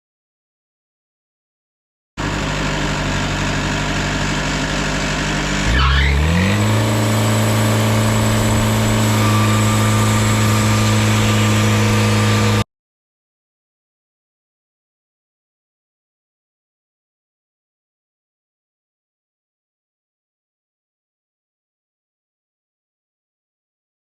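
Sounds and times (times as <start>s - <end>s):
small gasoline engine running: 2.2s - 12.6s.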